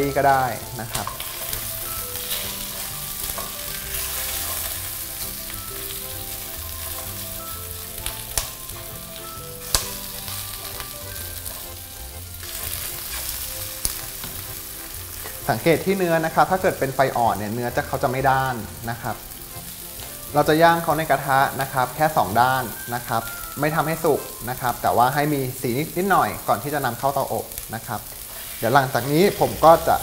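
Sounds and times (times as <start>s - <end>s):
meat sizzling in a frying pan: 0.0s - 30.0s
metal tongs clicking on pan: 2.2s - 4.8s, 8.0s - 8.6s.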